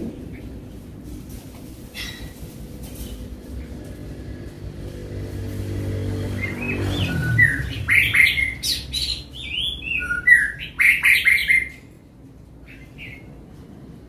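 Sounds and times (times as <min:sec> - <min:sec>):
bird chirping: 0:06.2 - 0:12.0.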